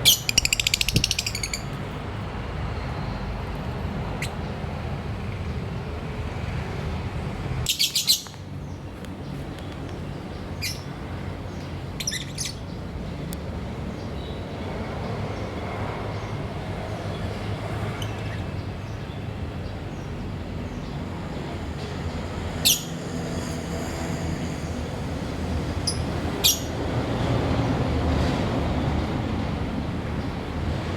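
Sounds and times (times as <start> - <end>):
lovebirds chirping shrilly: 0.0 - 1.8, 7.7 - 8.4, 10.6 - 10.9, 12.0 - 12.7, 22.6 - 22.9, 25.8 - 26.7.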